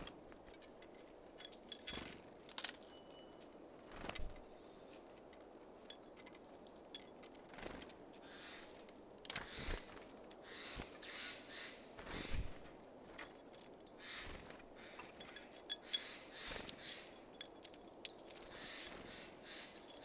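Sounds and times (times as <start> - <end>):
faint high bird chirps: 2.8 - 3.5
birds harsh calls: 8.1 - 20.0.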